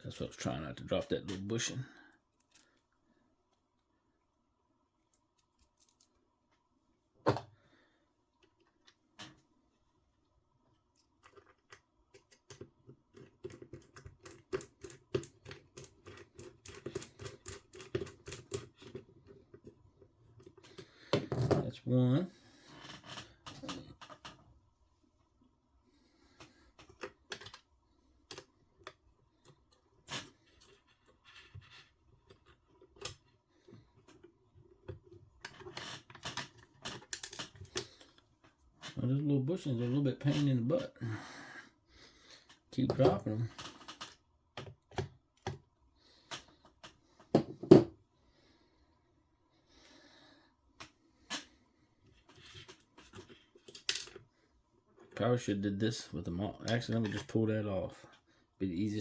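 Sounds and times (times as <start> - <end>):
small tools clicking and tapping: 11.0 - 19.7.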